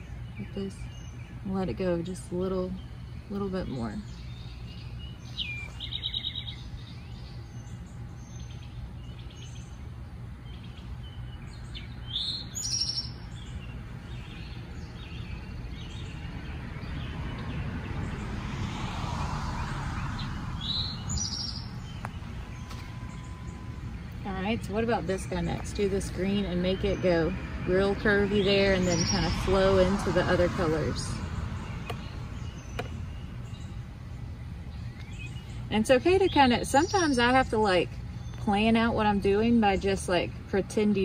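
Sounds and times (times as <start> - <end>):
low outdoor background noise: 0.0 - 41.0
songbirds chirping: 0.0 - 41.0.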